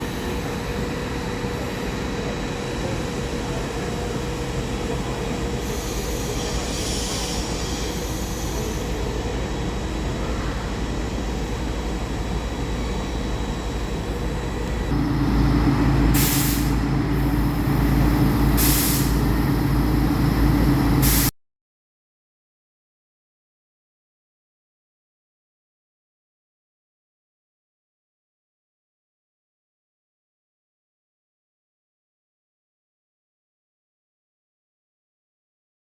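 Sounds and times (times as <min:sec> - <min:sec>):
train wheels rumbling on rails: 0:00.2 - 0:21.3
short hisses: 0:16.2 - 0:17.8, 0:18.6 - 0:19.3.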